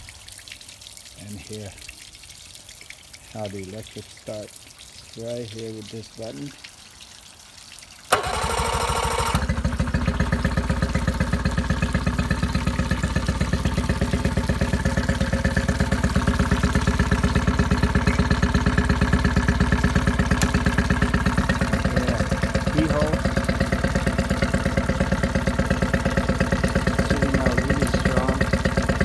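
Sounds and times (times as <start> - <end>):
electric starter cranking: 8.1 - 10.9, 14.3 - 29.0
outboard motor running: 8.1 - 29.0.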